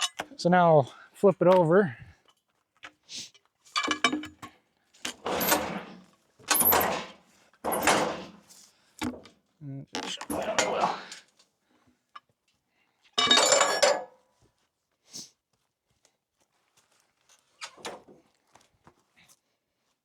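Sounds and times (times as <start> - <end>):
steel sawmill parts clanking: 3.8 - 4.4, 5.1 - 9.3, 10.0 - 11.2, 13.2 - 14.0.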